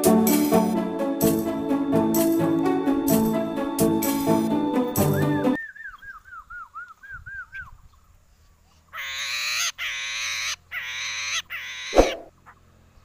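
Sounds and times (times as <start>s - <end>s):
bird whistling falling notes: 5.0s - 7.7s
bird harsh rasping calls: 8.9s - 12.7s.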